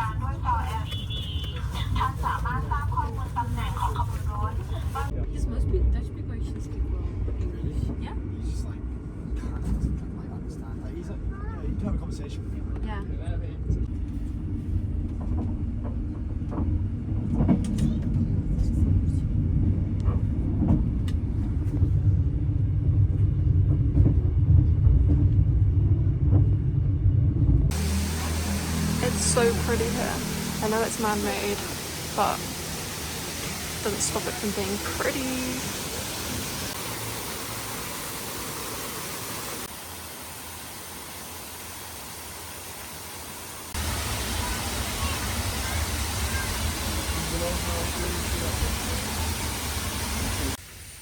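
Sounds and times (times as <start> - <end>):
outdoor hiss: 0.0 - 5.1, 27.7 - 51.0
vehicle rumble from on board: 0.0 - 13.0, 13.6 - 50.6.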